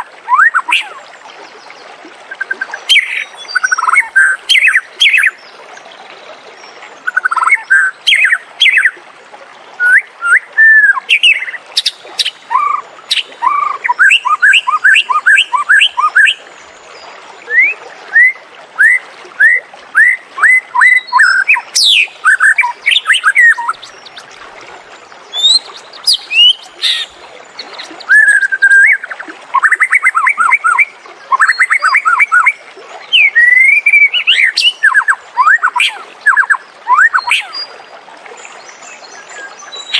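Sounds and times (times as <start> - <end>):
bird singing whistled phrases: 9.8 - 11.6, 17.5 - 24.0, 25.3 - 27.1, 28.0 - 37.7.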